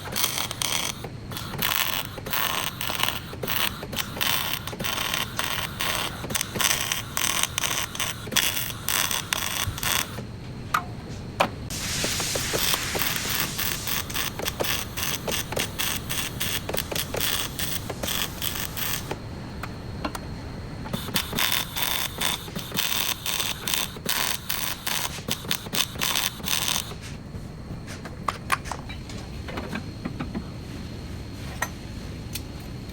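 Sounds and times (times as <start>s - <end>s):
short hiss: 11.7s - 15.0s.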